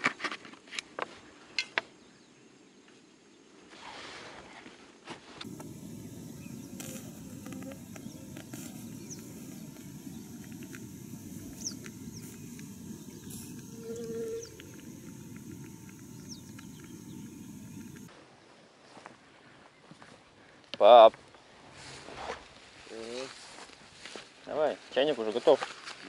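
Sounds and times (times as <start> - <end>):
birds chirping: 5.4 - 18.1
faint clicks: 5.4 - 18.1
low rushing background: 5.4 - 18.1.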